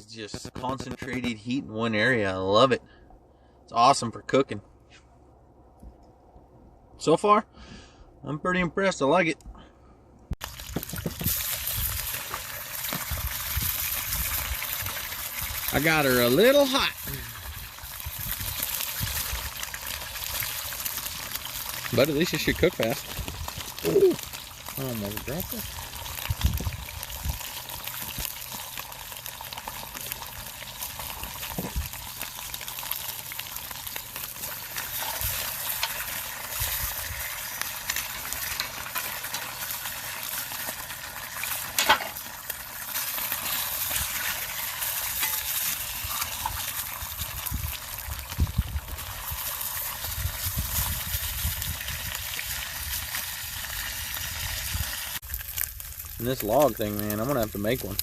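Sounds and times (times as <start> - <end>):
sharp crack: 0.2 - 1.4
food sizzling in a frying pan: 10.4 - 58.0.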